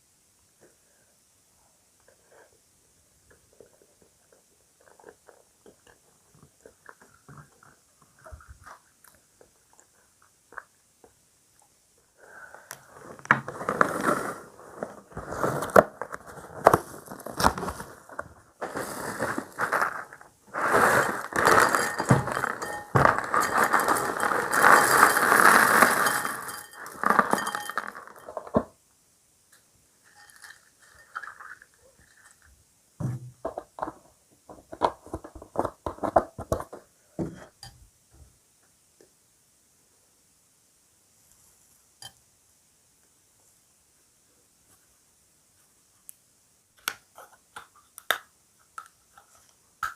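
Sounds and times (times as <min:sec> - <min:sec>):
spoon clinking against bowl: 0:26.0 - 0:27.9.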